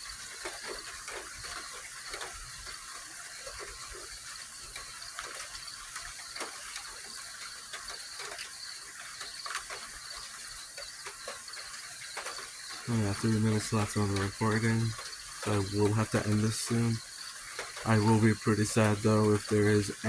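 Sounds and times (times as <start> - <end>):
night insects chirring: 0.0 - 20.0.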